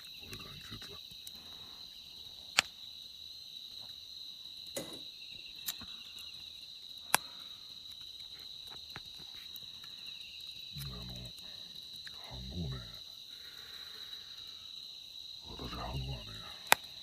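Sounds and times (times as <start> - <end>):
crickets chirping: 0.0 - 17.0
sharp snaps: 2.5 - 2.8, 7.0 - 12.2, 16.6 - 17.0.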